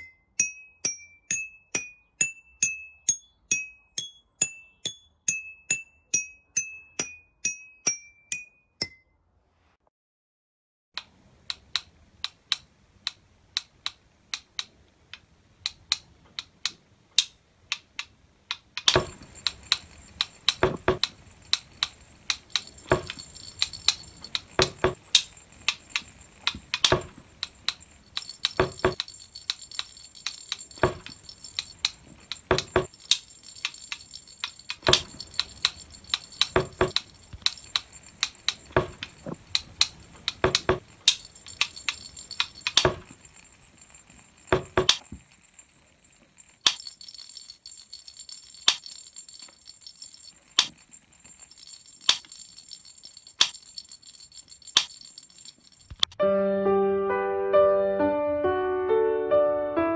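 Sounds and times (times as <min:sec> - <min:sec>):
percussion taps and strikes: 0:18.8 - 0:45.6, 0:46.7 - 0:56.2
steady high ringing: 0:19.0 - 0:56.0.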